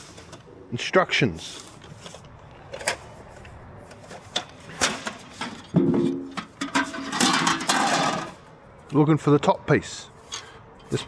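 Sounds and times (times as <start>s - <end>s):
hard parts clicking and knocking: 3.9s - 8.4s.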